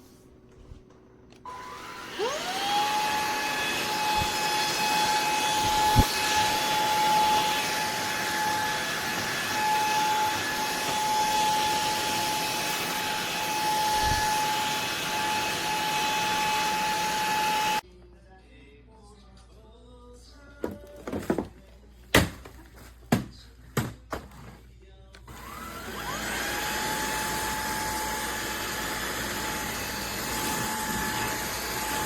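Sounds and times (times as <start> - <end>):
stick vacuum motor whine: 1.4 - 17.8, 25.3 - 32.0.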